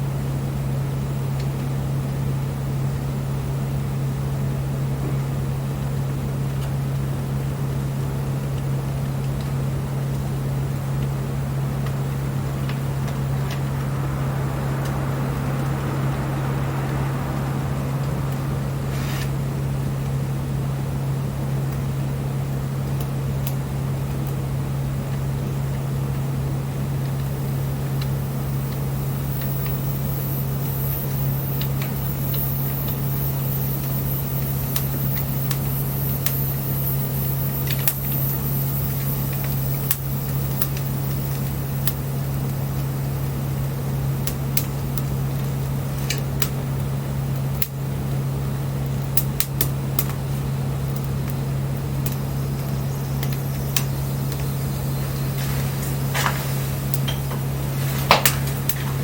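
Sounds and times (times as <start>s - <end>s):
steady low hum: 10.7s - 59.0s
wood fire crackling and popping: 48.8s - 59.0s.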